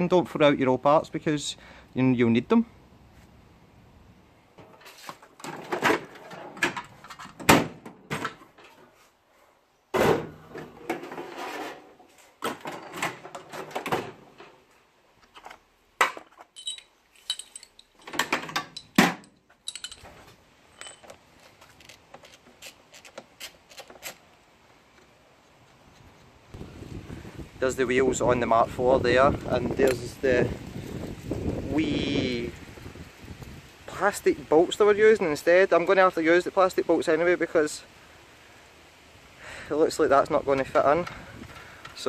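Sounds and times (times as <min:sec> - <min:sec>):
tools and seat hardware clattering: 0:16.2 - 0:21.2.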